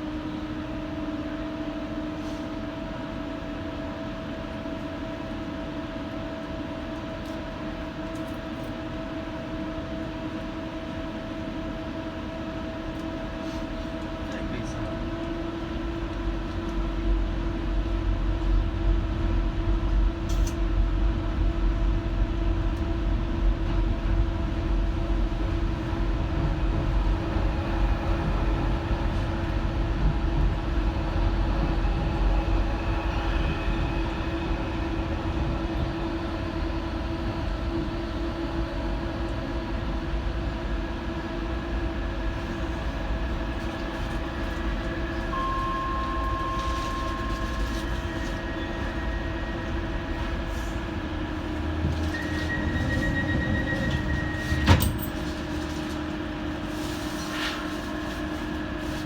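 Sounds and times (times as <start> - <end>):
train wheels rumbling on track: 0.0 - 59.0
short high tone: 45.3 - 50.4.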